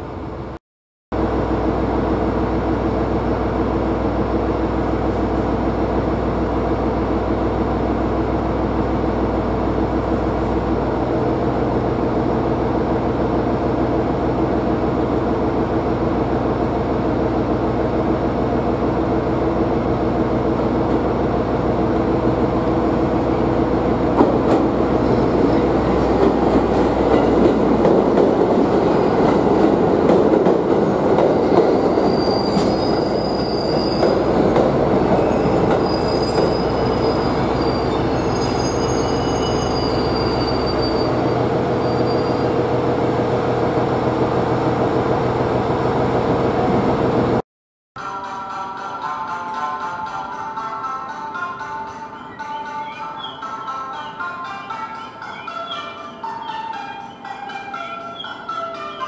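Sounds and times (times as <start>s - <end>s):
high-pitched wheel squeals: 31.7s - 34.3s, 35.2s - 42.6s, 55.1s - 59.0s.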